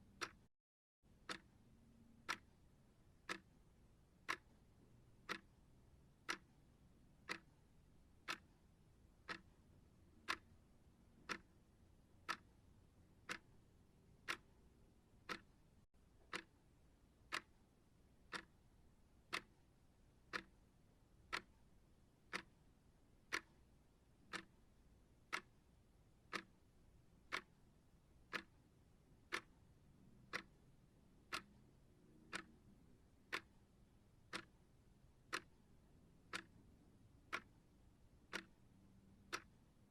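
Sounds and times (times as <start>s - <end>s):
timer ticking: 0.0s - 0.5s, 1.1s - 11.6s, 12.2s - 15.6s, 16.2s - 16.6s, 17.3s - 17.7s, 18.3s - 20.7s, 21.3s - 21.7s, 22.3s - 24.6s, 25.2s - 39.9s.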